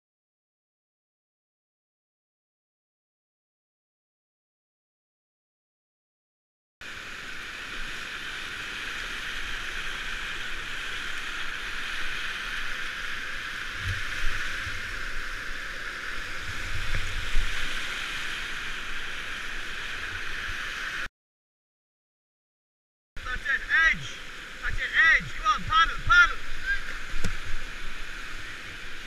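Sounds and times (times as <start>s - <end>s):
river water rushing: 6.8s - 21.1s, 23.2s - 29.0s
low thumps on microphone: 27.1s - 27.6s.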